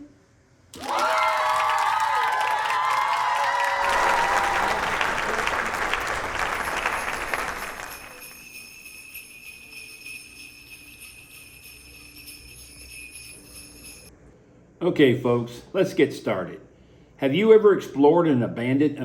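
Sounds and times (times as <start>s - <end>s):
applause: 0.8s - 8.4s
sleigh bells jingling: 3.8s - 14.1s.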